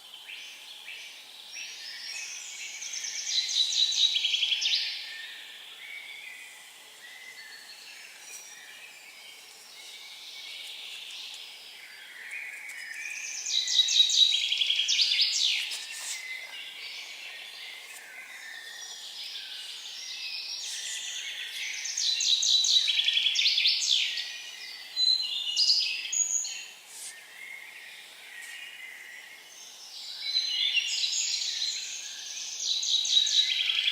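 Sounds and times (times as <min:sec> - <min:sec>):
faint high hiss of birds or insects: 0:00.0 - 0:33.9
songbird singing: 0:00.0 - 0:33.9.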